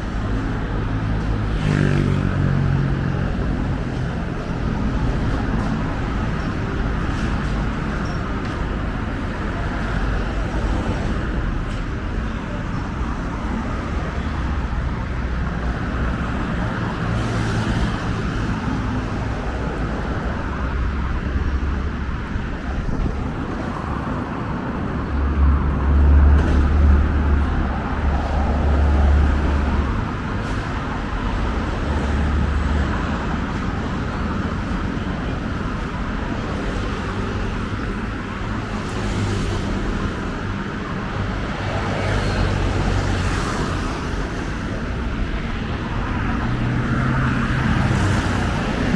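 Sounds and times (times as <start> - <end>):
city street traffic: 0.0 - 48.9
vehicle engine hum passing: 0.6 - 5.7.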